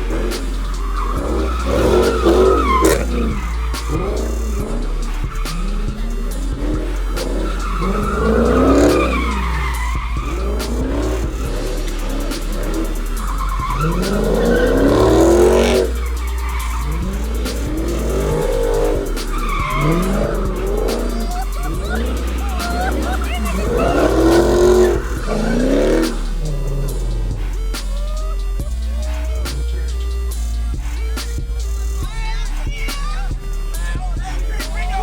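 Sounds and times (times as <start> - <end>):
car engine revving: 0.0 - 35.0
tyres squealing: 0.0 - 35.0.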